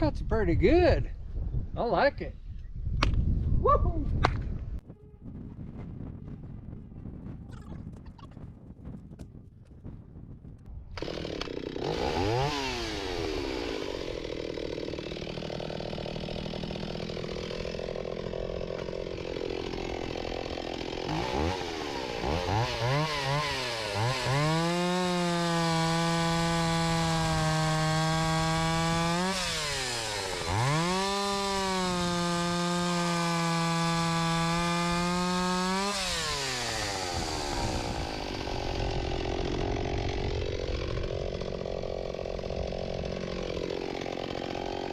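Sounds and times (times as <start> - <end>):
chainsaw revving: 10.9 - 44.9.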